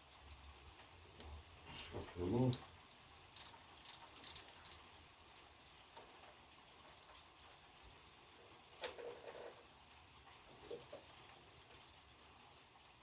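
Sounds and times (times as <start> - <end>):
hand tools clicking: 3.4 - 4.8.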